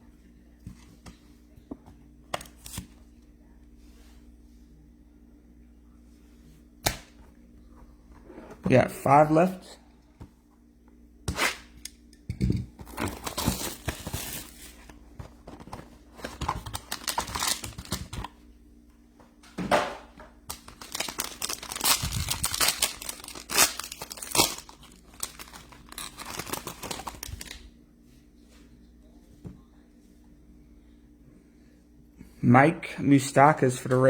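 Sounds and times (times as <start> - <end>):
plastic wrapping tearing and crinkling: 12.9 - 14.7, 16.3 - 18.3, 20.5 - 27.6.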